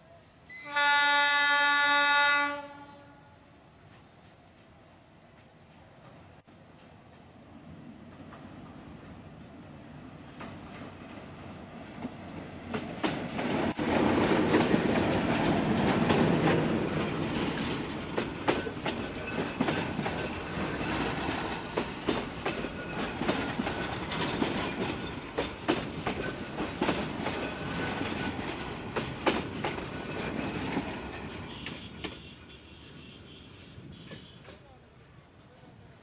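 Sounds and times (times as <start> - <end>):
diesel locomotive passing: 0.5 - 36.0
wheels clacking over rail joints: 11.9 - 32.5.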